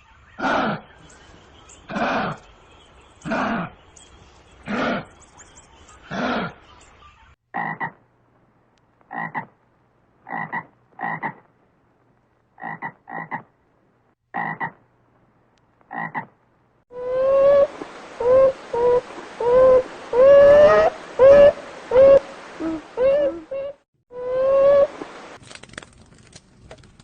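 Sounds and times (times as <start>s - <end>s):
frog croaking: 7.5s - 8.0s, 9.1s - 9.6s, 10.2s - 11.5s, 12.6s - 13.5s, 14.3s - 14.8s, 15.9s - 16.3s.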